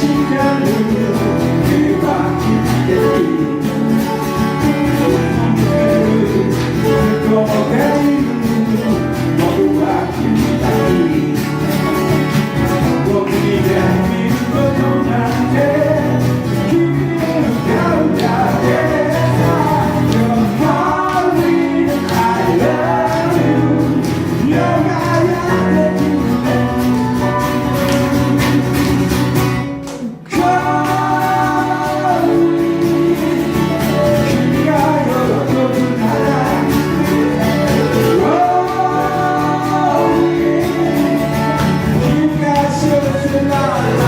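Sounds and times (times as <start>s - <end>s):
guitar accompaniment: 0.0s - 44.0s
person singing: 0.0s - 44.0s.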